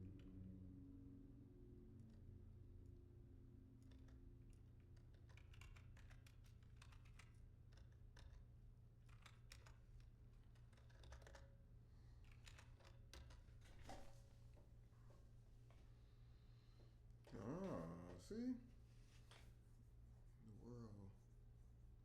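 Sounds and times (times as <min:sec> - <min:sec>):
low steady hum: 0:00.0 - 0:22.0
typing on computer keyboard: 0:03.8 - 0:08.4, 0:09.0 - 0:11.5, 0:12.2 - 0:14.0.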